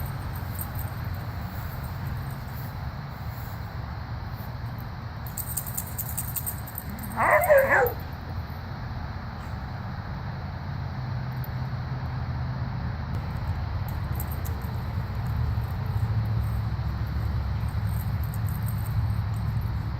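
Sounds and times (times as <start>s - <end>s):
dog short call: 6.9s - 8.1s.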